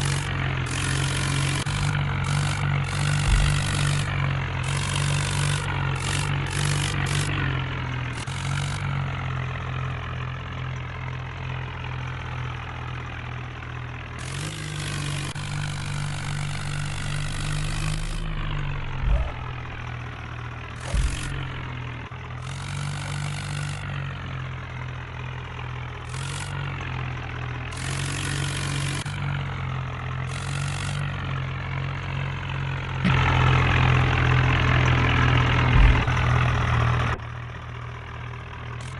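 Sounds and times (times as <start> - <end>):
tractor engine running: 0.0 - 38.9
short thumps: 3.0 - 4.1, 15.4 - 22.1, 35.6 - 37.2.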